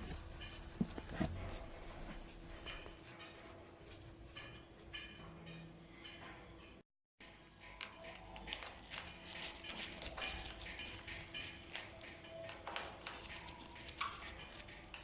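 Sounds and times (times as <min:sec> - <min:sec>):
screws scraping on metal clamp: 0:00.0 - 0:03.0.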